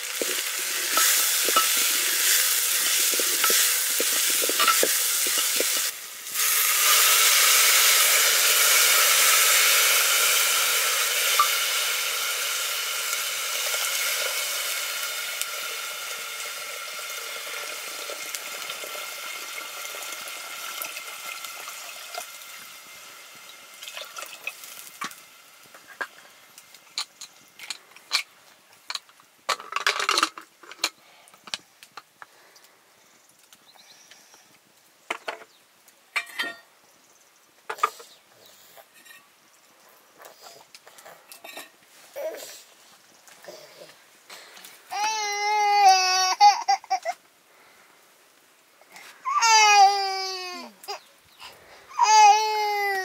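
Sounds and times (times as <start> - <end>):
food sizzling in hot oil: 0.0 - 28.2
utensil clicking and scraping pan: 0.2 - 5.9.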